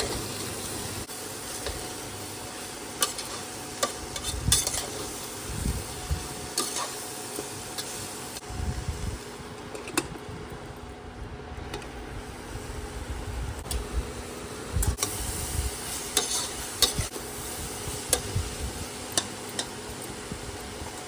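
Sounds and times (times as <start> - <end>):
food sizzling in a pan: 0.0 - 9.4, 13.6 - 21.0
spatula scraping a pan: 3.0 - 5.2, 6.5 - 7.0, 16.1 - 17.1.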